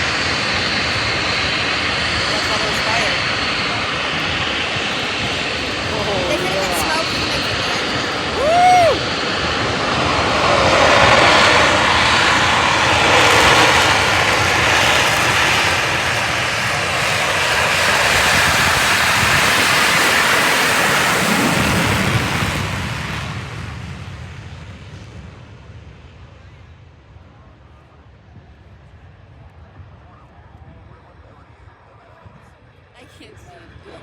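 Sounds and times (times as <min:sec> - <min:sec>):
jet roar: 0:00.0 - 0:26.2.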